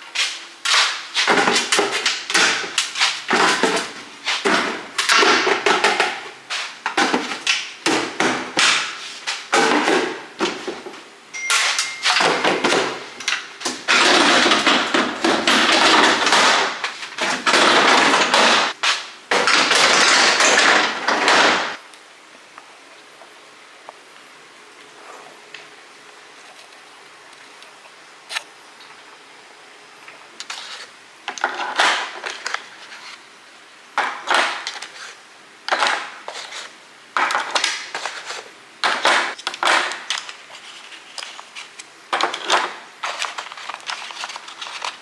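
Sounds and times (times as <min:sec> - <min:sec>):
containers knocking and clattering: 0:00.7 - 0:21.8, 0:34.0 - 0:35.0, 0:37.2 - 0:40.4.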